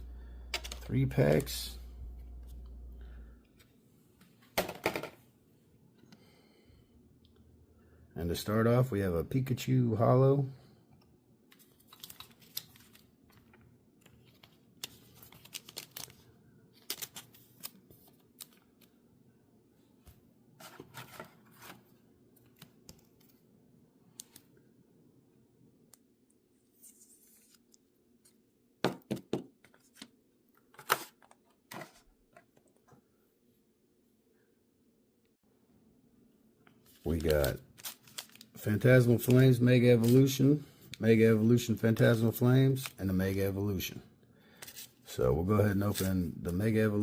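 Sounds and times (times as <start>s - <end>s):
faint room hum: 0.0s - 47.0s
packaging crinkles and clicks: 11.6s - 16.2s, 16.8s - 18.9s, 37.0s - 38.6s.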